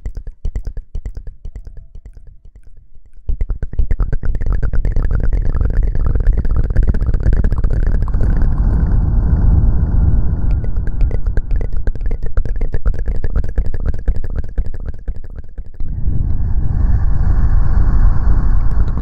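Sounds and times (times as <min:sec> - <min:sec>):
heavy low rumble: 0:07.1 - 0:13.4, 0:15.8 - 0:19.0.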